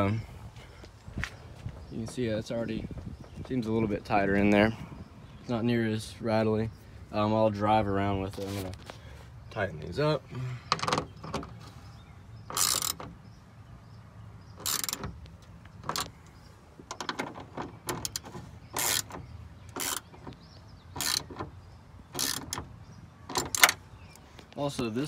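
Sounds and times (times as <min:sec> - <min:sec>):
ratchet wrench clicking: 0:12.5 - 0:13.0, 0:14.6 - 0:15.0, 0:18.8 - 0:20.1, 0:21.0 - 0:21.3, 0:22.2 - 0:22.6.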